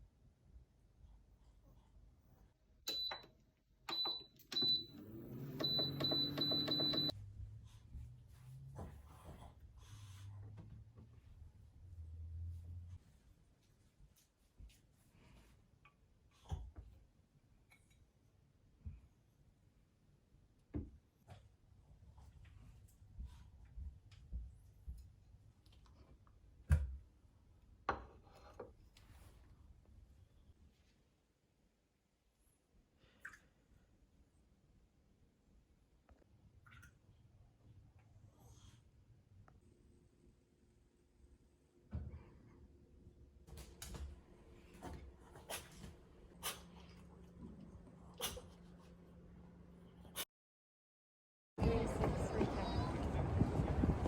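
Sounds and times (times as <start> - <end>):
appliance beeps: 2.9 - 7.2
motor humming spinning up: 4.8 - 7.1.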